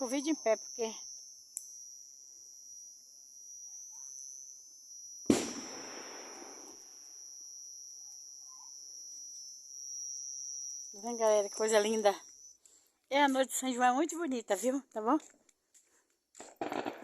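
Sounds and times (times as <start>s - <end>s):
high-pitched insect trill: 0.0s - 17.0s
firework bang with rumbling echo: 5.3s - 6.7s, 16.6s - 17.0s.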